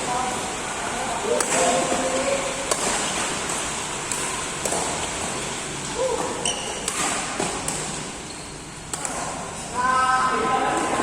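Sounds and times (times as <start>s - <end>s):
racket hitting shuttlecock: 1.3s - 5.4s, 6.1s - 8.2s, 8.8s - 9.8s
shoe squeak on court floor: 6.4s - 6.8s, 8.2s - 8.8s.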